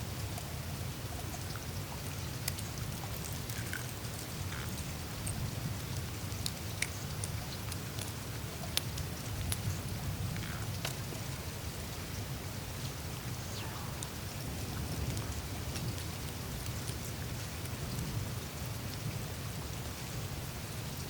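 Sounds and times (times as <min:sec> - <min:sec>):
meltwater trickling and dripping: 0:00.1 - 0:21.0
melting ice ticks and clicks: 0:01.2 - 0:11.4, 0:14.0 - 0:19.1.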